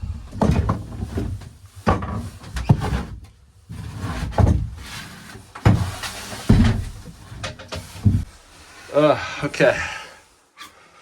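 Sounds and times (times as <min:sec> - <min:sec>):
heavy blows and cracking wood: 0:00.0 - 0:03.3, 0:05.6 - 0:08.3
scraping and rattling: 0:00.0 - 0:08.5.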